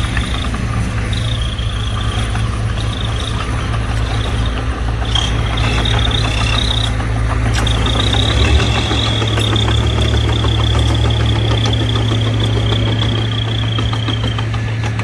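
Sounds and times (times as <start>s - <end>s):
diesel engine running: 0.0s - 15.0s
high thin squeal: 7.6s - 14.3s.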